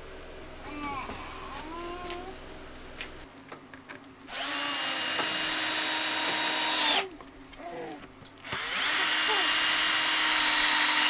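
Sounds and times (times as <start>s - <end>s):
power drill running: 4.3s - 7.1s, 8.4s - 11.0s.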